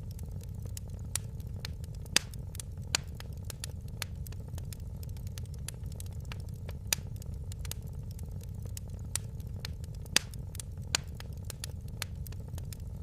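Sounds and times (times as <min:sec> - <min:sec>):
fire pops and snaps: 0:00.0 - 0:13.0
low fire rumble: 0:00.0 - 0:13.0
wood fire crackling: 0:00.0 - 0:13.0.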